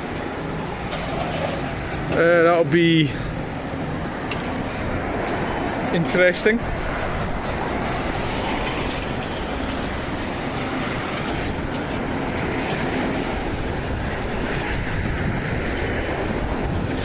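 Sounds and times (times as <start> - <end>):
engine rumbling: 0.0 - 17.0.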